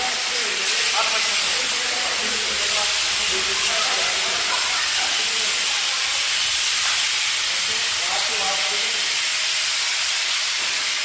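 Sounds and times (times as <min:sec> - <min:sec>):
steady loud hiss: 0:00.0 - 0:11.0.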